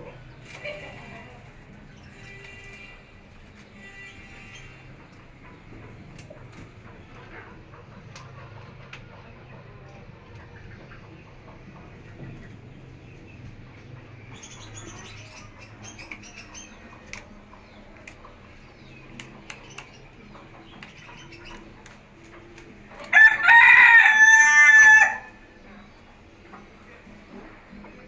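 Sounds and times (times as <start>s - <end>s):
quiet chirps and clicks: 16.0s - 23.1s
rooster crowing: 23.1s - 25.5s.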